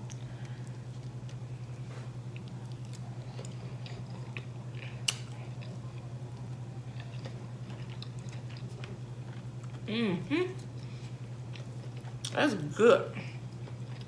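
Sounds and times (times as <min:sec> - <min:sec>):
steady low hum: 0:00.0 - 0:14.0
chewing with wet mouth clicks: 0:02.2 - 0:09.9, 0:10.6 - 0:12.4, 0:13.5 - 0:14.0.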